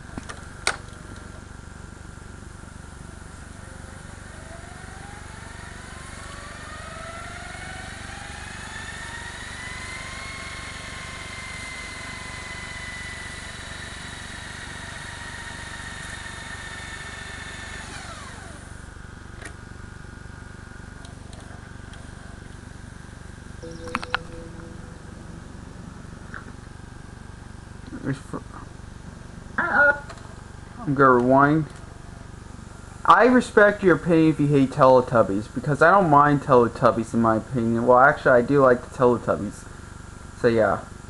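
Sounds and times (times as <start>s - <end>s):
steady low hum: 0.0s - 41.0s
tape transport whine: 3.4s - 19.6s, 20.8s - 34.2s.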